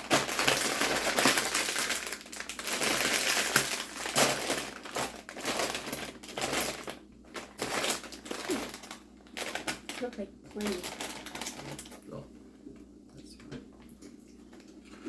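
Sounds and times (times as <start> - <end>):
chip bag rustling and crackling: 0.0 - 12.0.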